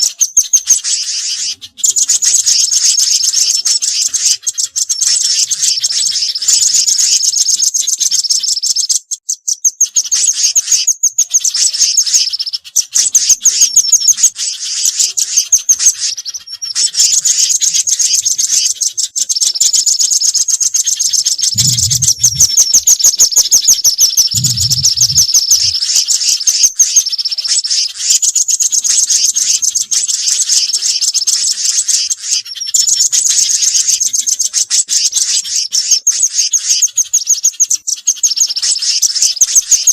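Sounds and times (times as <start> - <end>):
songbirds chattering trills: 0.0 - 39.9
short low thumps: 21.6 - 22.5, 24.4 - 25.7.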